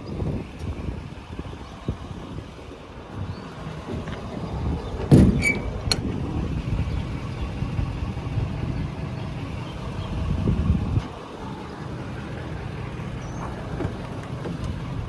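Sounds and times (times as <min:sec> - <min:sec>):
diesel truck engine idling: 0:00.0 - 0:15.0
sharp clunk: 0:05.1 - 0:06.1.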